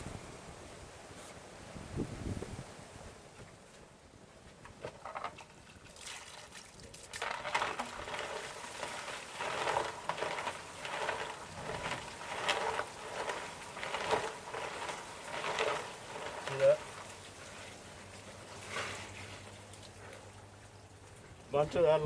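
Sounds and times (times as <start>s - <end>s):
water sloshing in a tank: 5.0s - 22.0s.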